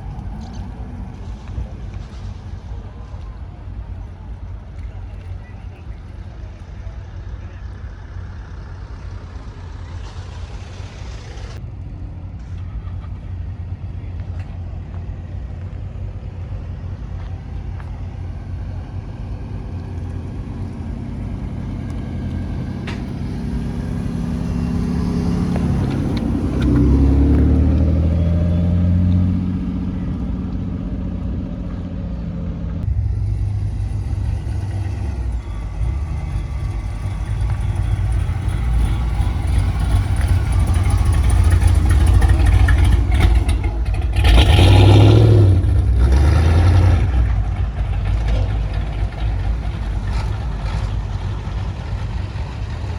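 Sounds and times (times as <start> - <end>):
car engines running: 0.0 - 52.9
car driving past: 19.5 - 52.9.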